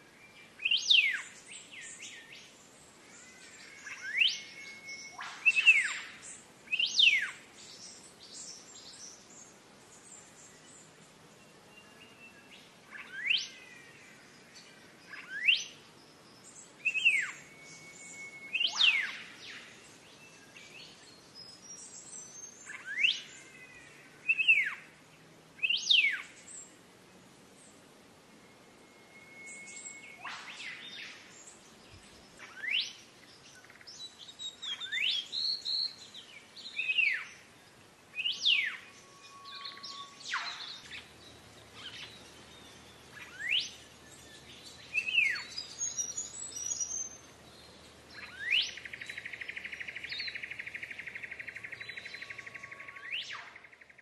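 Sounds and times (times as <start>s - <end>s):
bird whistling sweeping notes: 3.8s - 7.3s, 16.8s - 19.8s, 28.4s - 31.4s, 38.2s - 41.1s, 43.1s - 43.8s.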